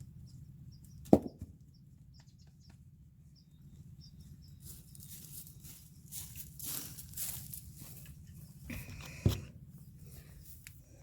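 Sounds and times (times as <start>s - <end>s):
faint steady hum: 0.0s - 11.0s
small birds chirping: 0.0s - 11.0s
rustling: 4.6s - 9.2s.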